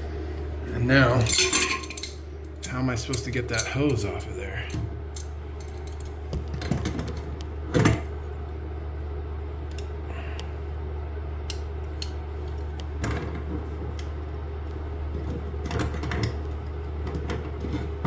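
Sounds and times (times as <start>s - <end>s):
steady low hum: 0.0s - 18.0s
metal tools clicking and clinking: 1.1s - 6.2s
metal clank: 1.2s - 2.2s.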